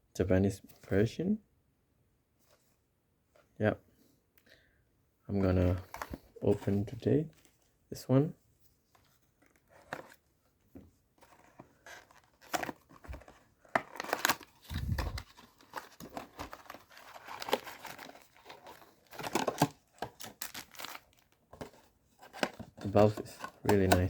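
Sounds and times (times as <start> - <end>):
packaging torn and crinkled: 12.2 - 21.4.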